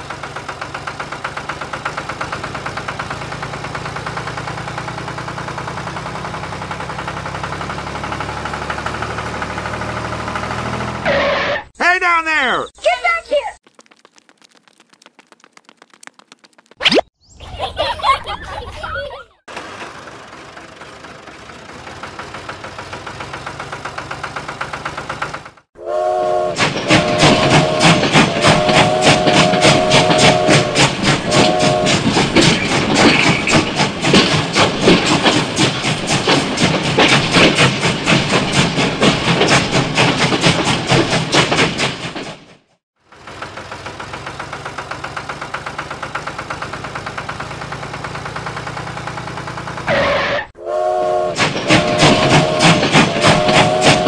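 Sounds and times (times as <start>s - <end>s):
toy locomotive chuffing clatter: 0.0s - 6.0s, 19.5s - 25.7s, 26.5s - 42.5s, 43.1s - 49.9s, 51.2s - 54.0s
toy tractor engine chugging: 0.0s - 9.0s, 19.5s - 25.6s, 43.0s - 49.9s
toy train whistle: 25.8s - 32.0s, 49.9s - 54.0s.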